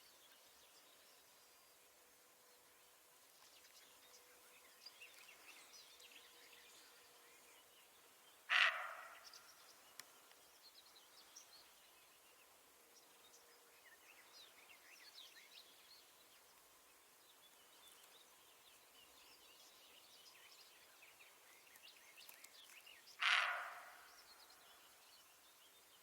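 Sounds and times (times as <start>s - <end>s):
small birds chirping: 17.3s - 26.0s.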